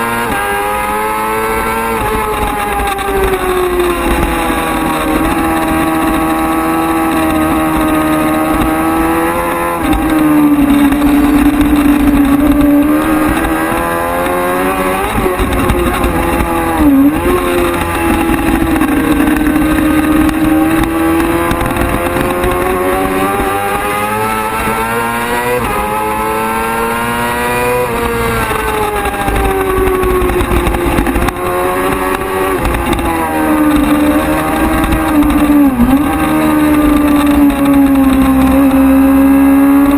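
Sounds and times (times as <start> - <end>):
racing motorcycle engine revving: 0.0 - 39.9.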